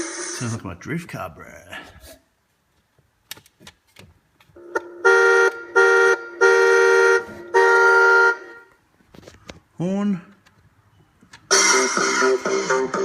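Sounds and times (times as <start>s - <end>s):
toy car electronic horn honks: 4.6s - 8.7s.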